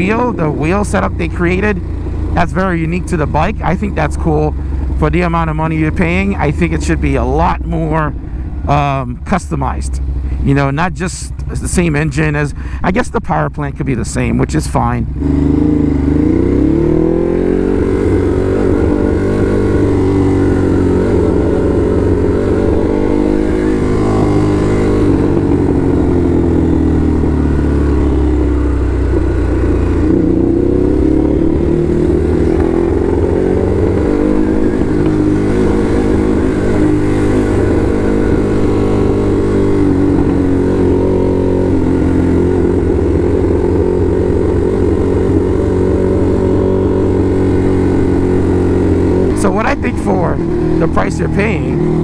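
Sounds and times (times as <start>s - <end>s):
motorcycle engine revving: 0.0s - 13.1s, 14.3s - 52.0s
wind and road noise: 0.0s - 52.0s.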